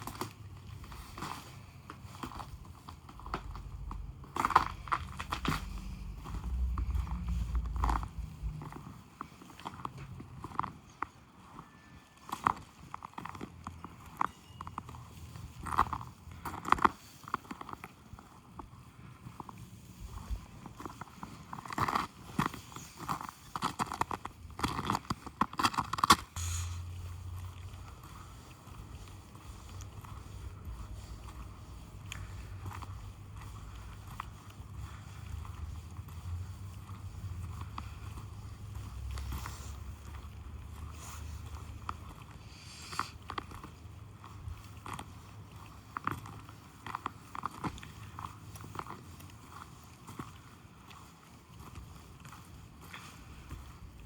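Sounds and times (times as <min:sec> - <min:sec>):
footsteps crunching in snow: 0:00.0 - 0:54.0
steady low hum: 0:00.8 - 0:09.0
wind rumble on microphone: 0:03.3 - 0:10.6.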